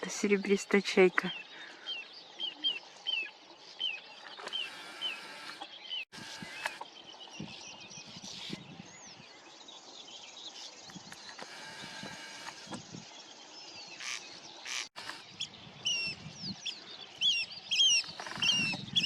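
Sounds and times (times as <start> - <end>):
several birds calling: 0.0 - 19.0.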